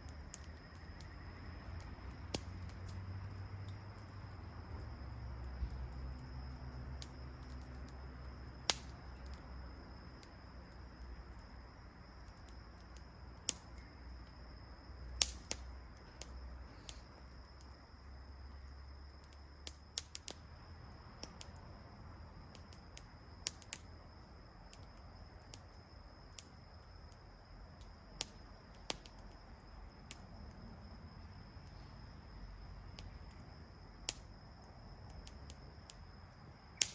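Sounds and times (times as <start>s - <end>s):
campfire crackling and popping: 0.0s - 30.6s, 32.8s - 36.9s.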